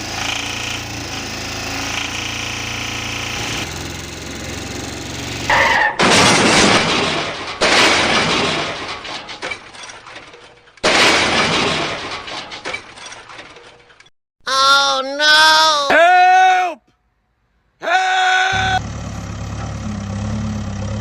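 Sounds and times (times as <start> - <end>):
cartoon crash with shattering glass: 5.5 - 10.2, 10.8 - 13.3.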